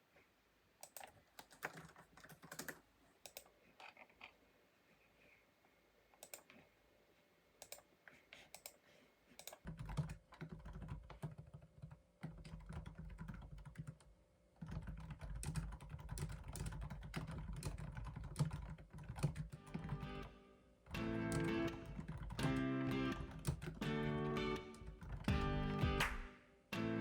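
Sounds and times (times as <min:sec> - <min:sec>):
typing on computer keyboard: 0:00.8 - 0:04.0, 0:06.2 - 0:06.5, 0:07.6 - 0:07.8, 0:09.4 - 0:20.3, 0:21.3 - 0:23.9, 0:24.7 - 0:25.4.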